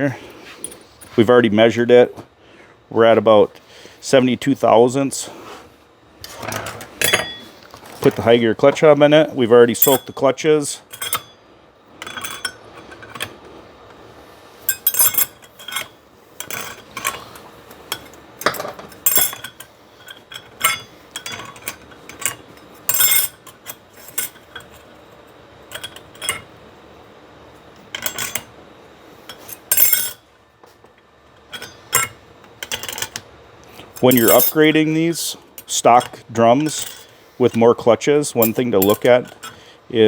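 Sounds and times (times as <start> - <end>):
metal clutch plates clinking: 9.8 - 10.2, 14.7 - 17.2, 17.9 - 24.9, 29.3 - 30.2, 34.0 - 34.7, 38.4 - 39.6.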